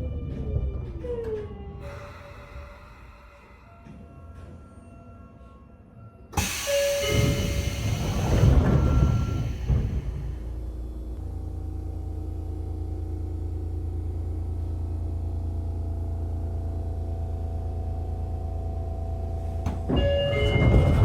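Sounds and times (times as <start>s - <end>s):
electric train humming: 0.0s - 21.0s
train doors clattering: 6.4s - 10.5s, 19.4s - 21.0s.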